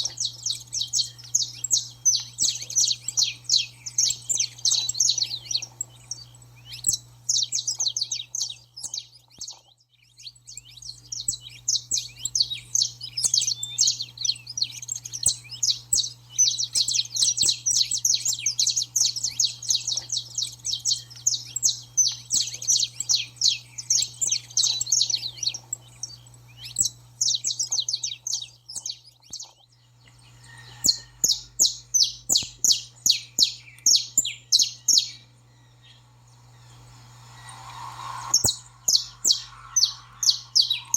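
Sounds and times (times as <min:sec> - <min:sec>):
finch chirping: 0:00.0 - 0:40.9.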